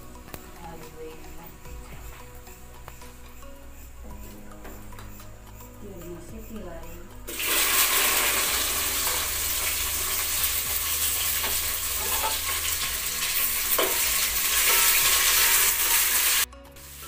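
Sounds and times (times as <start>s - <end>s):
okra sizzling in hot oil: 7.2s - 17.0s
stirring scrapes in pot: 7.4s - 16.5s.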